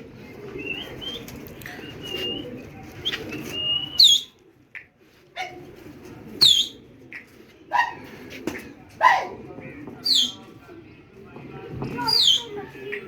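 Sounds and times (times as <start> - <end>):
loud sharp bird calls: 6.4 - 6.8.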